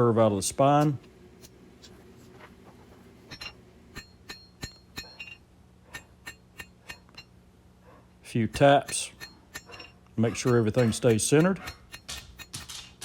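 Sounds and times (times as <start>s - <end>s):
hammer tapping steel blade on anvil: 3.3s - 7.3s, 8.5s - 13.0s.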